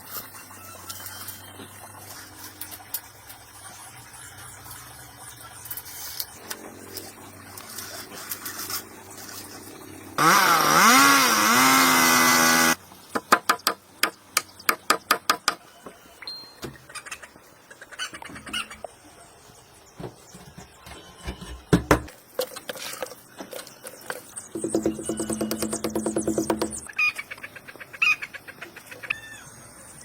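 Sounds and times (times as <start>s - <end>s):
small engine revving: 10.2s - 12.8s
sharp knocks: 20.0s - 22.1s, 24.6s - 26.9s.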